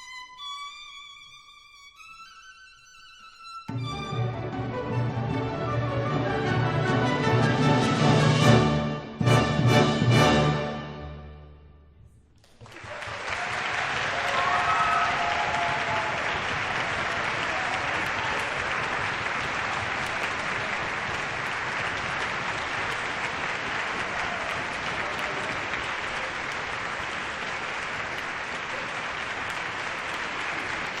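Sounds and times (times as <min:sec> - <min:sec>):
audience applauding: 0:12.4 - 0:31.0.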